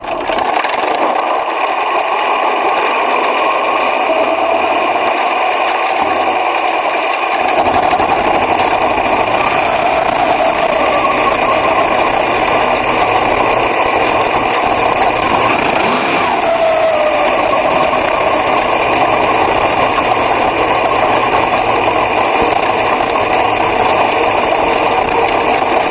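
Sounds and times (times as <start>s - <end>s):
racing car engine at high revs: 3.2s - 25.9s
deeper rumble: 7.4s - 25.9s.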